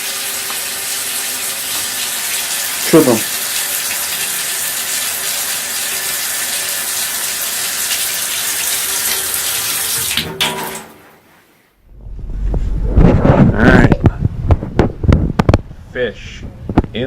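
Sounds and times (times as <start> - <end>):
running water rushing: 0.0 - 11.1.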